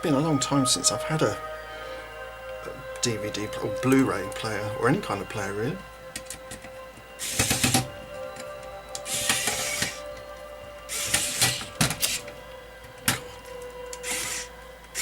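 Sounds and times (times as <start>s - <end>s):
music with held tone: 0.0s - 15.0s.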